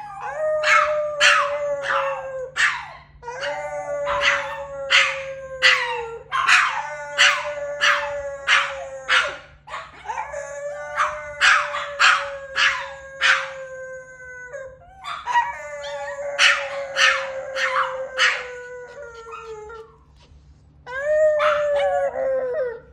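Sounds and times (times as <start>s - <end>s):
dog howling: 0.0s - 20.0s, 20.9s - 22.9s
dog yipping: 0.6s - 3.5s, 4.1s - 10.2s, 11.0s - 13.5s, 15.0s - 18.5s.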